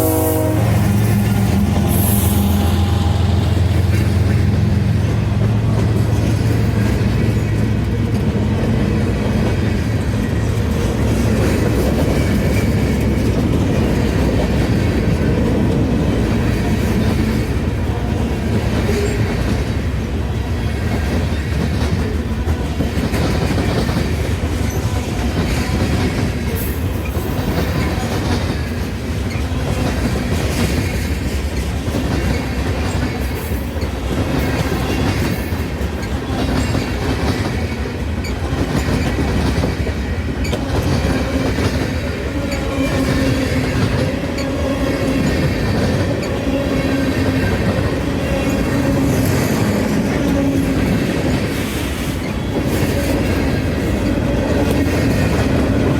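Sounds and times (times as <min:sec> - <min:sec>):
train wheels clattering: 0:20.6 - 0:55.9.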